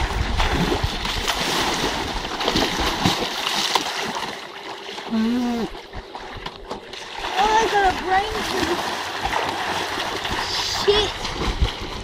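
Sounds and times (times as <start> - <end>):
swimmers splashing water: 0.0 - 12.0.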